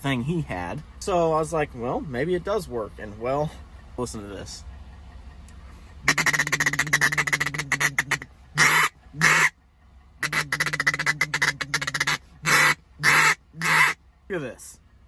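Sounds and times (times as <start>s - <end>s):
duck call quacks: 6.0s - 9.5s, 10.2s - 14.0s
duck call chattering: 6.0s - 9.6s, 10.2s - 14.0s.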